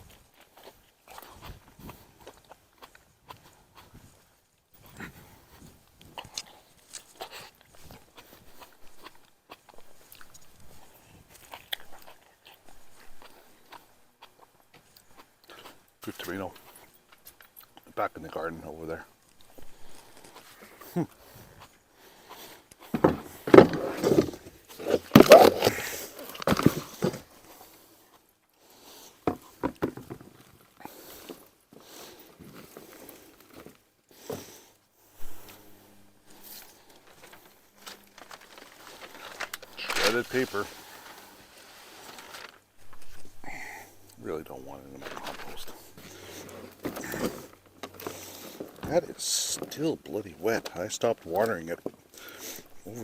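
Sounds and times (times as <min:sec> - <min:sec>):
rustling of pots and soil: 0:00.0 - 0:53.0
dry plant stems crackling: 0:22.8 - 0:27.7, 0:35.3 - 0:49.0.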